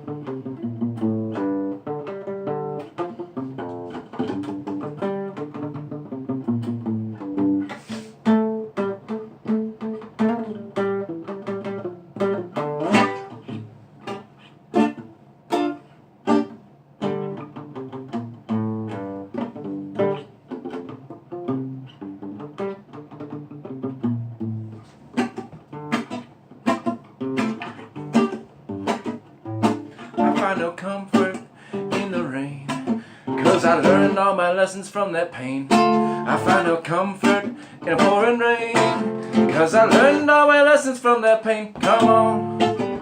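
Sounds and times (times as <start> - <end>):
acoustic guitar reggae music: 0.0 - 43.0.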